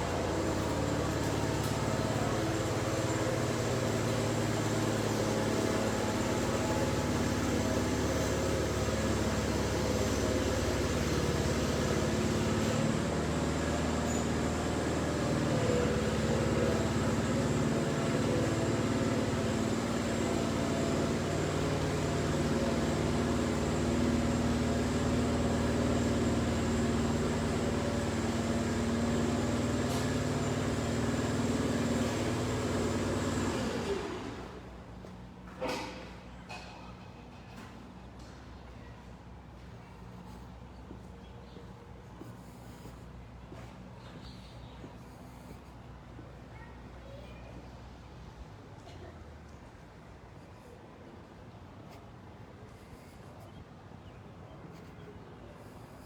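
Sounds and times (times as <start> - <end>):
small tractor engines running: 0.0 - 56.0.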